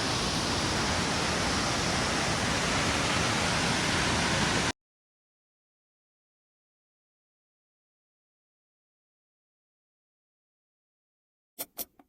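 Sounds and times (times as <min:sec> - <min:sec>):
waterfall rushing: 0:00.0 - 0:04.7.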